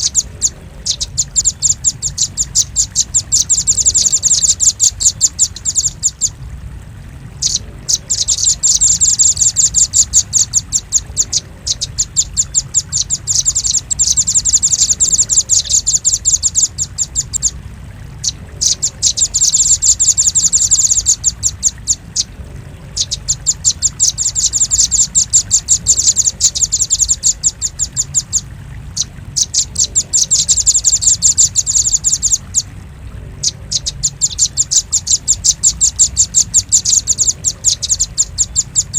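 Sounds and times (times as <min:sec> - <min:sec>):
bird calling sharp high chips: 0:00.0 - 0:06.4
low steady hum: 0:00.0 - 0:38.9.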